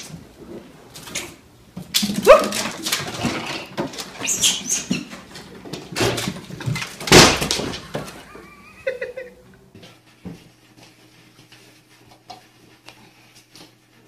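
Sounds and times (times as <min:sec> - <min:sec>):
dog barking and yelping: 0:02.2 - 0:02.7.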